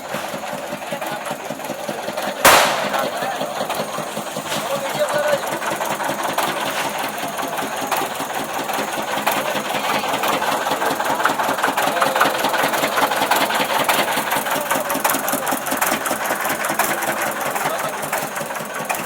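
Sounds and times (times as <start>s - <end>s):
firecrackers crackling: 2.4s - 4.9s.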